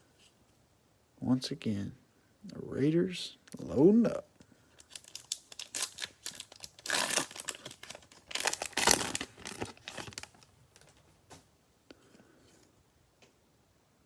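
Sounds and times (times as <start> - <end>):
cellophane wrapper crinkling: 4.7 - 11.1.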